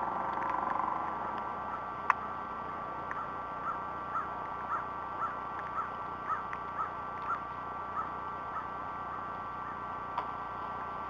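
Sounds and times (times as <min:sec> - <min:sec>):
faint steady whine: 0:00.0 - 0:11.0
bird chirping: 0:03.0 - 0:09.9.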